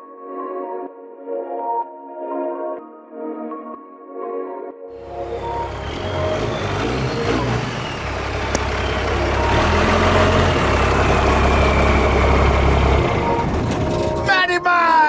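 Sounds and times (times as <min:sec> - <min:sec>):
vehicle engine rumbling: 0:05.0 - 0:15.0.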